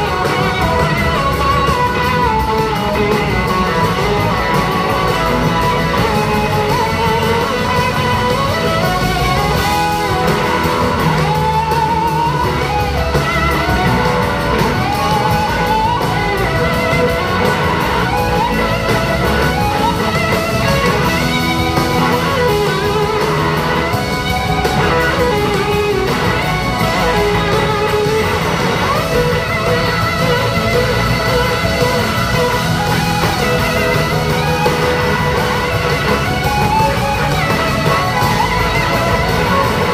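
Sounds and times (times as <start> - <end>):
bass: 0.0 - 39.9
drums: 0.0 - 39.9
electric guitar solo: 0.0 - 39.9
keyboards: 0.0 - 39.9.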